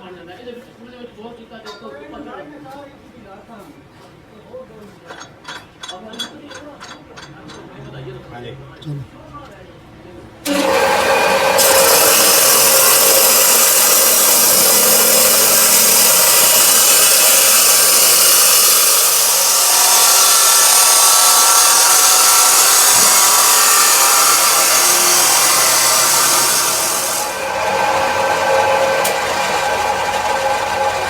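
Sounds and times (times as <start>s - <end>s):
power tool rasping on steel: 10.5s - 31.0s.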